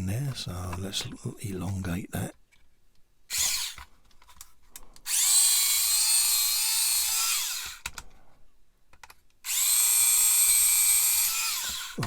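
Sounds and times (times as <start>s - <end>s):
electric drill whining: 3.3s - 3.9s, 5.0s - 7.9s, 9.4s - 12.0s.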